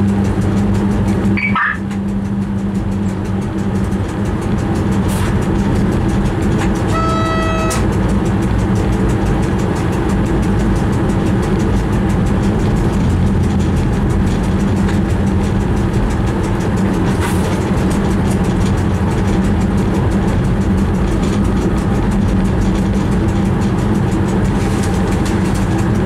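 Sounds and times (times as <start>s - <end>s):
traction equipment hum: 0.0s - 26.0s
wheels rumbling on rail: 0.0s - 26.0s
short high click: 6.9s - 7.9s.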